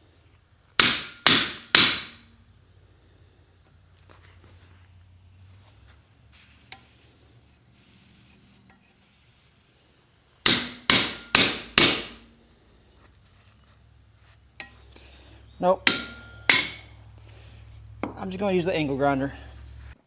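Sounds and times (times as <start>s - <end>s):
hammer striking chisel on steel: 0.8s - 2.4s, 10.4s - 12.5s, 14.6s - 20.0s.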